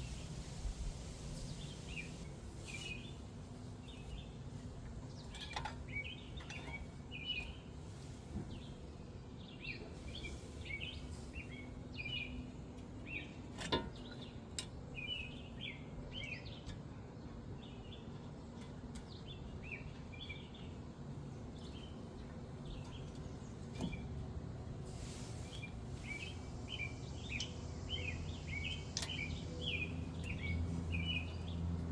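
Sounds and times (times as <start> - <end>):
low background noise: 0.0 - 31.9
small birds chirping: 0.0 - 31.9.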